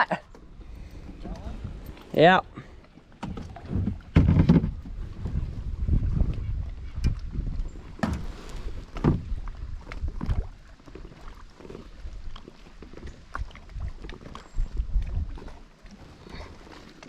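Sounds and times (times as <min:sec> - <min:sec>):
low wind rumble on microphone: 0:00.6 - 0:02.0, 0:03.3 - 0:12.4, 0:13.0 - 0:15.6
knocks and bumps on a kayak: 0:03.2 - 0:11.3.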